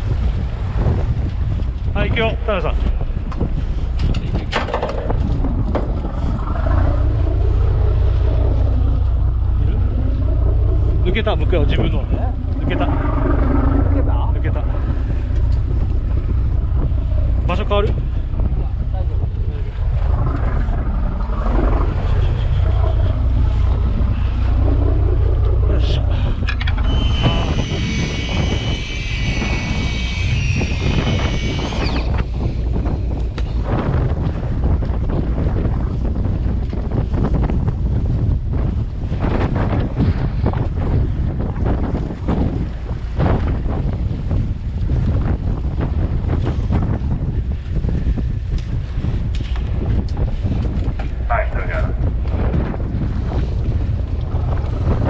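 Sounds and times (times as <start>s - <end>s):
boat engine rumbling: 0.0s - 55.0s
water noise: 0.0s - 55.0s
wind on microphone: 0.0s - 55.0s
high multi-tone whine: 22.7s - 32.3s.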